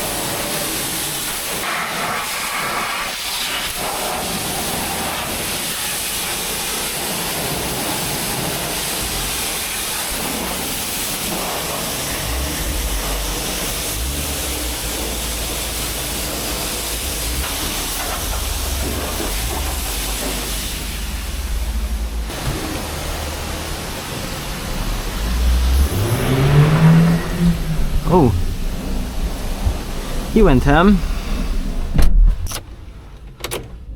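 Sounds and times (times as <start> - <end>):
high-pressure water spray hissing: 0.0 - 31.9
low rumble: 12.1 - 32.5.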